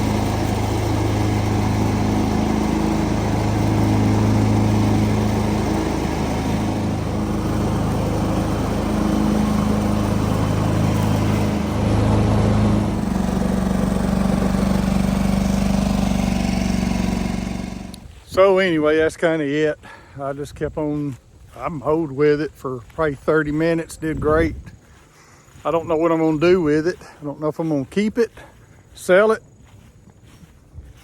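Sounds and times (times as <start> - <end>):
garden tractor engine running: 0.0 - 19.2.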